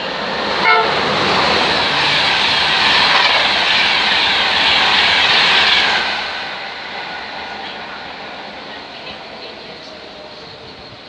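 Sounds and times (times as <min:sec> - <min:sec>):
train passing at speed: 0:00.0 - 0:11.0
train horn toot: 0:00.6 - 0:01.0.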